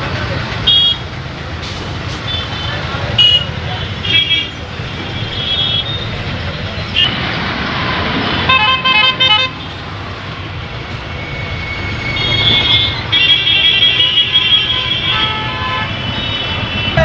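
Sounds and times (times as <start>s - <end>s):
road noise: 0.0s - 17.0s
vehicle horns: 0.6s - 1.1s, 2.1s - 6.2s, 6.9s - 9.8s, 12.0s - 17.0s.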